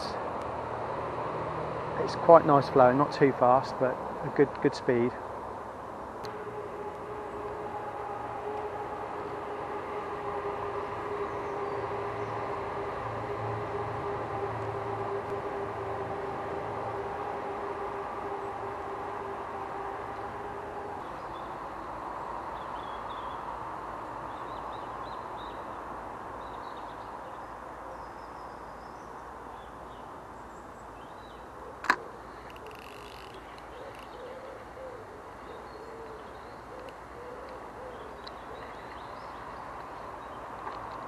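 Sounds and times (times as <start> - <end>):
low wavering bird call: 6.3 - 23.6, 31.1 - 39.6.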